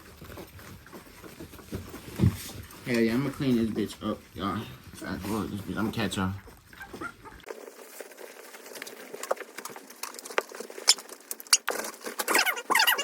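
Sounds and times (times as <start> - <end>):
puppies pattering: 0.0 - 13.0
puppy squeaks: 6.7 - 7.5, 12.3 - 13.0.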